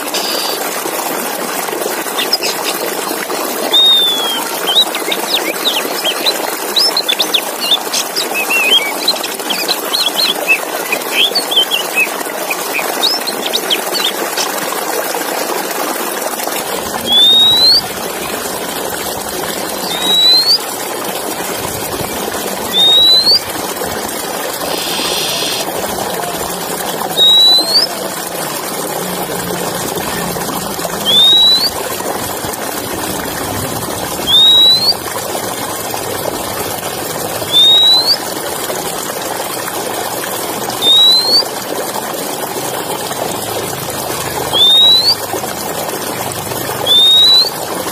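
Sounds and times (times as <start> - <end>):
bird chirping and whistling: 0.2 - 0.6, 3.7 - 14.5, 17.0 - 17.9, 19.6 - 20.6, 22.6 - 23.5, 24.6 - 25.7, 27.0 - 28.1, 31.0 - 31.8, 34.2 - 35.0, 37.5 - 38.2, 40.8 - 41.5, 44.5 - 45.2, 46.8 - 47.6.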